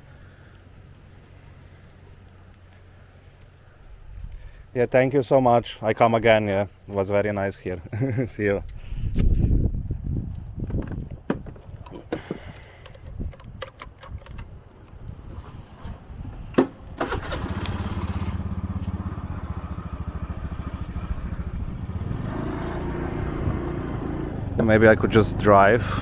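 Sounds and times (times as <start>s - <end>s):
handling clicks and knocks: 10.2s - 15.2s
small motorbike engine putter: 10.3s - 15.2s, 17.0s - 18.4s.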